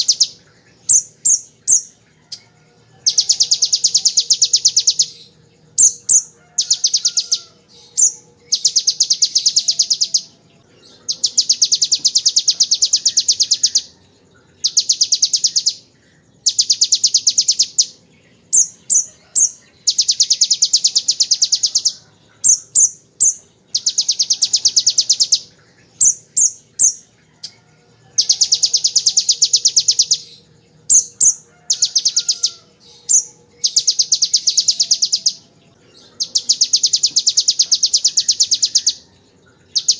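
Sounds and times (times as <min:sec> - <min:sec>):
bird rapid trills: 0:36.2 - 0:39.9.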